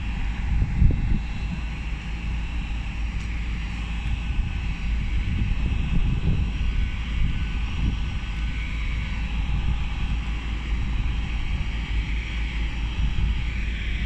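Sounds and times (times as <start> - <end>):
train low rumble: 0.0 - 14.0
wind on microphone: 0.0 - 14.0.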